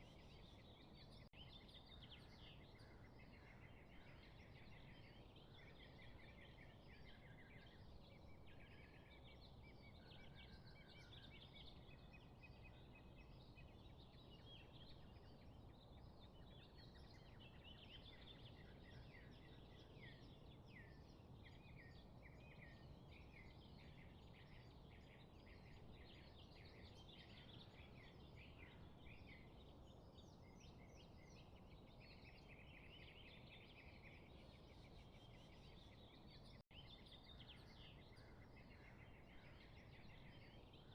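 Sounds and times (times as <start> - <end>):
small birds chirping and trilling: 0.0 - 40.9
steady low background noise: 0.0 - 40.9.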